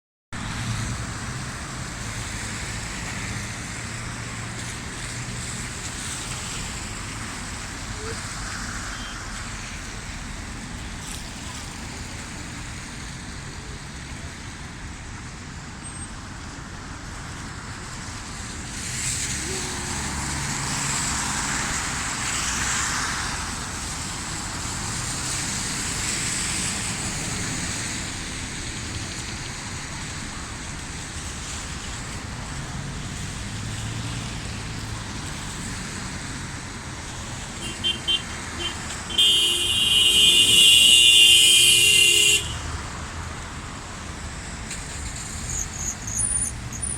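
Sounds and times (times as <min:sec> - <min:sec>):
rain and tyres hissing: 0:00.4 - 0:46.9
car horn beeping: 0:08.9 - 0:09.2, 0:37.6 - 0:42.7
vehicle passing: 0:18.9 - 0:23.8.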